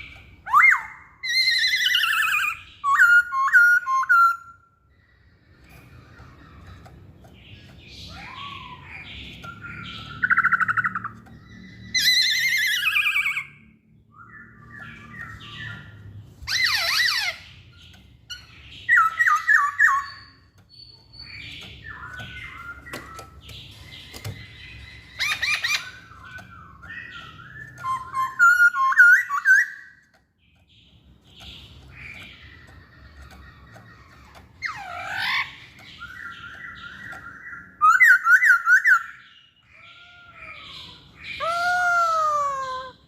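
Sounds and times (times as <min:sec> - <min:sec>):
bird singing whistled phrases: 0:00.0 - 0:04.6, 0:25.2 - 0:30.0, 0:34.7 - 0:39.2.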